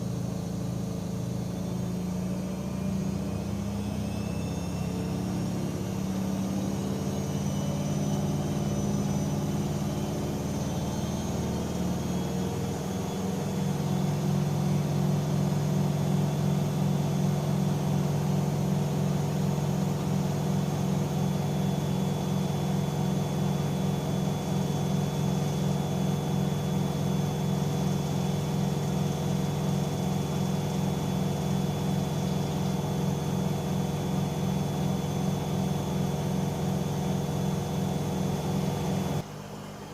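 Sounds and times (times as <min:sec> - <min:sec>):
washing machine motor humming: 0:00.0 - 0:39.2.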